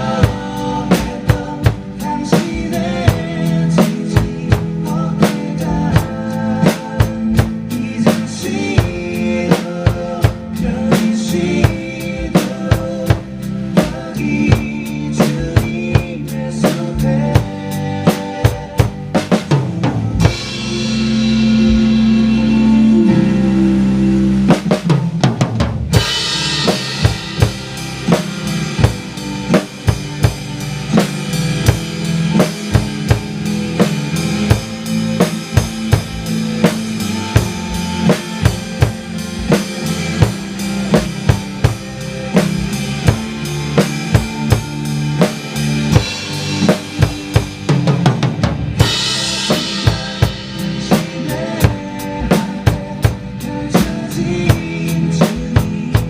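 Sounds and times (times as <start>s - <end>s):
backing track music: 0.0s - 56.0s
drum kit playing: 0.0s - 56.0s.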